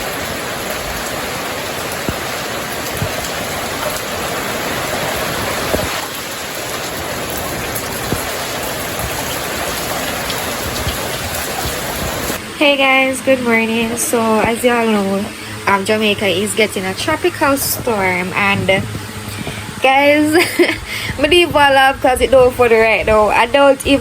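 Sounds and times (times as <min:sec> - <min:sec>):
raindrops striking surfaces: 0:00.0 - 0:12.8, 0:13.6 - 0:24.0
heavy rain: 0:00.0 - 0:24.0.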